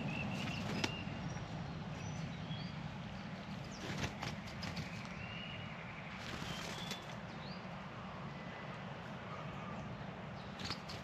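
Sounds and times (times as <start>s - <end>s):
faint whistled bird calls: 0.0s - 1.4s, 4.8s - 8.7s, 9.3s - 11.0s.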